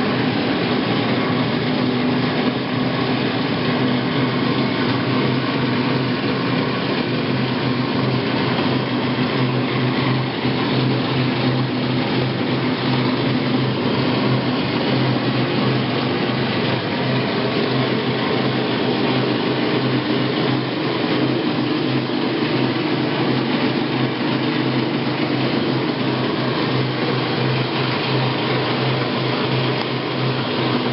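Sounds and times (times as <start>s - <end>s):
low hum: 0.0s - 30.9s
washing machine running: 0.0s - 30.9s.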